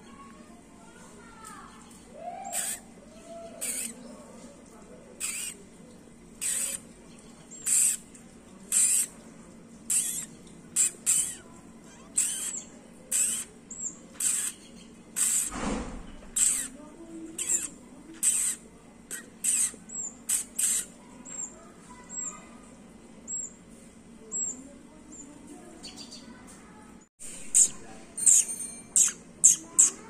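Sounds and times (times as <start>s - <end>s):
small bird high-pitched calls: 2.2s - 4.2s, 5.2s - 5.6s, 6.4s - 8.1s, 8.7s - 9.1s, 9.9s - 15.5s, 16.3s - 22.4s, 24.3s - 26.3s, 27.3s - 30.0s.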